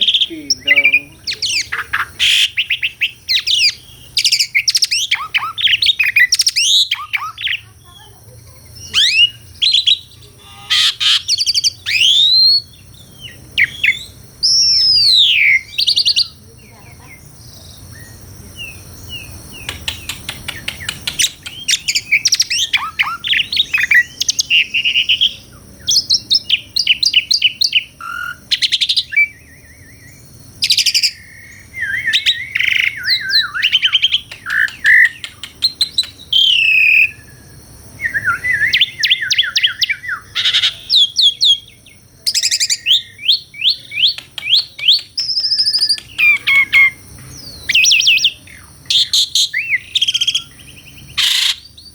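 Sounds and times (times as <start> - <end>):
starling singing: 0.0 - 51.9.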